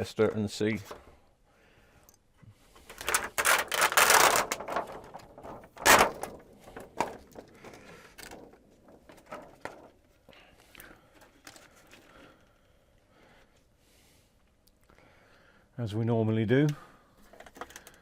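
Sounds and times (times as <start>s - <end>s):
scraping and rustling: 2.7s - 10.3s.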